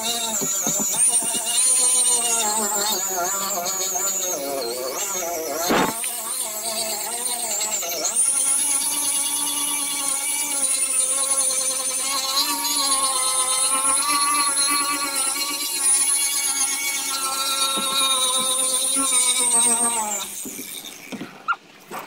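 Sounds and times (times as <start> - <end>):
electric grinder sanding: 0.0 - 21.3.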